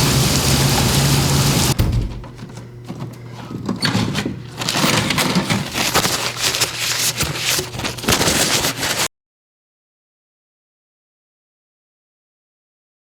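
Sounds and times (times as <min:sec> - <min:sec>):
wind and rain on microphone: 0:00.0 - 0:01.8.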